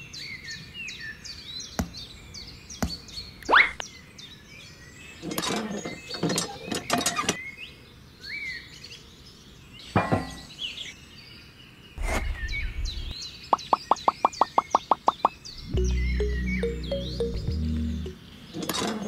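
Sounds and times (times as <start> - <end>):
birds chirping: 0.0 - 19.0
low handling rumble: 12.0 - 13.2, 15.5 - 18.2.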